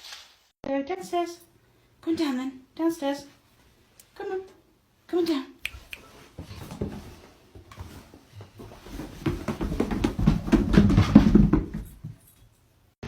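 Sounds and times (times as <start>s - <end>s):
dog paws running down stairs: 6.2s - 12.6s.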